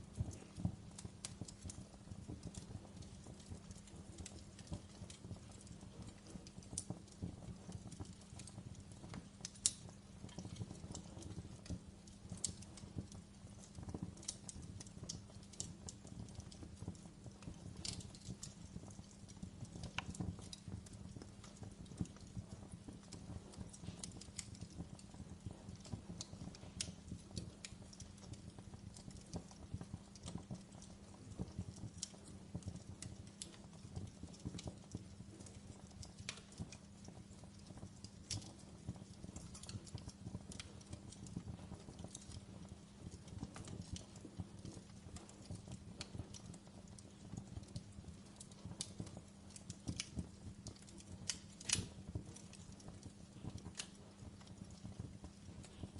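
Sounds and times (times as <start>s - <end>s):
fireplace flames rumbling: 0.0s - 55.9s
wood crackling and popping: 0.0s - 55.9s.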